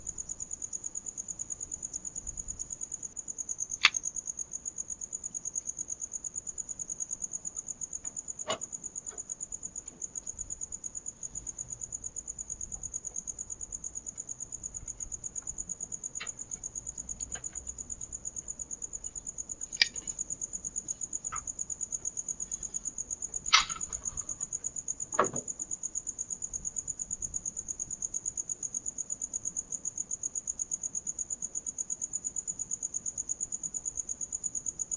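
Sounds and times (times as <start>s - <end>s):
crickets chirping: 0.0s - 34.9s
sharp clicks and knocks: 19.7s - 20.2s, 23.4s - 24.4s.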